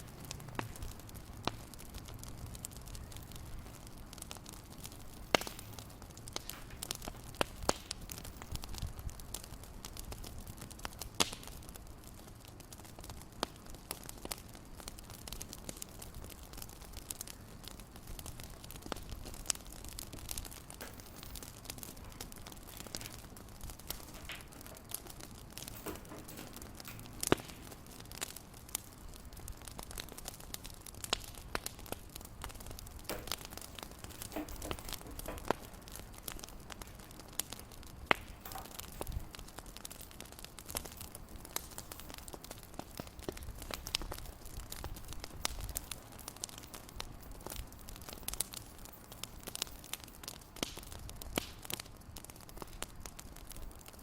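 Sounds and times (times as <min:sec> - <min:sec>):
fireplace crackling and popping: 0:00.0 - 0:54.0
low steady hiss: 0:00.0 - 0:54.0.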